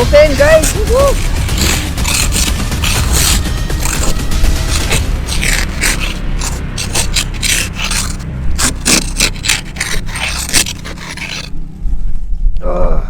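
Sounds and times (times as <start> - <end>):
ice scraper rasping on ice: 0.0 - 11.5.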